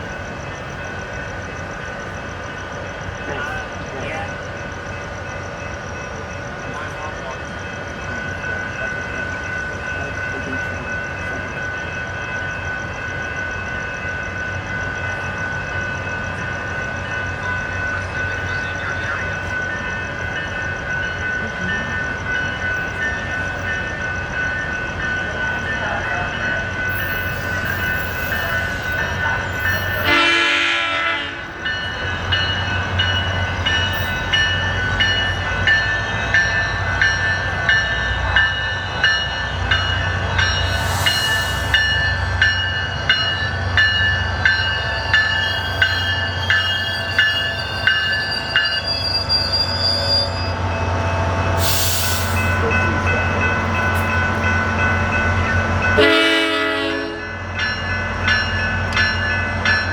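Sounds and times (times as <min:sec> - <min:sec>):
train engine rumble: 0:00.0 - 0:59.9
steady high tones: 0:31.2 - 0:50.6.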